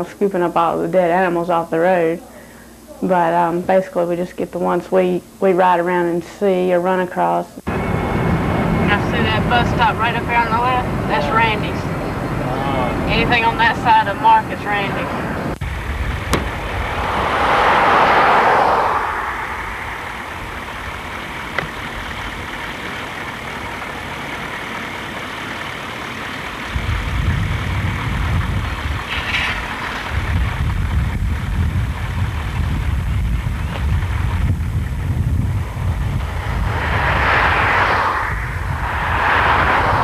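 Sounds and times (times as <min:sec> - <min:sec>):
heavy low rumble: 0:07.7 - 0:24.6, 0:30.2 - 0:40.0
truck engine and road noise: 0:07.7 - 0:40.0
rushing noise: 0:15.2 - 0:24.5, 0:35.4 - 0:40.0.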